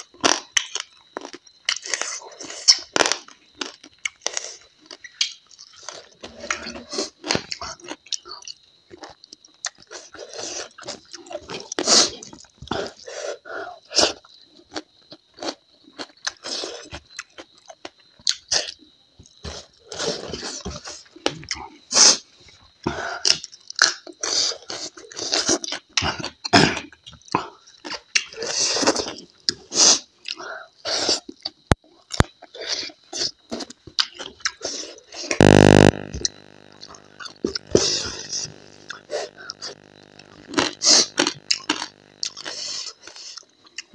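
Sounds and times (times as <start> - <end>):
person chewing and eating: 35.3 - 36.0, 36.6 - 43.9
faint high whine: 35.4 - 43.2.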